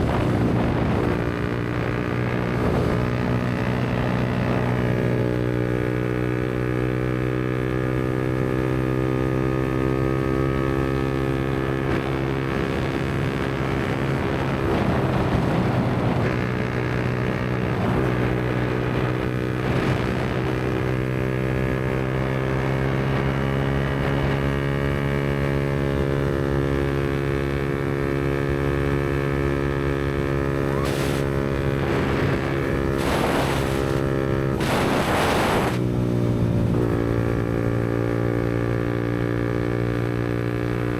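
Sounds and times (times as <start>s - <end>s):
motorcycle engine cruising: 0.0s - 40.9s
rushing noise: 30.6s - 31.8s, 32.6s - 35.9s.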